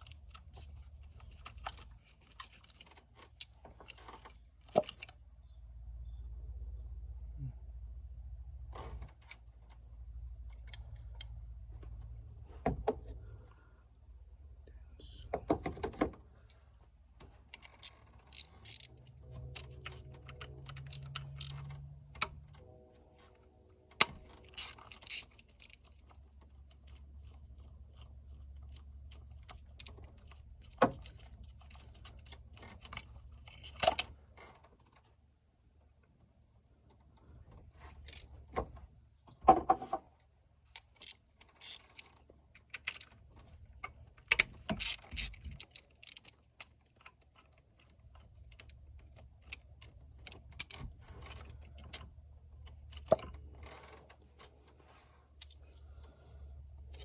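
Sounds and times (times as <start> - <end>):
faint low hum: 0.0 - 57.0
metal hand tools clinking: 24.5 - 25.9.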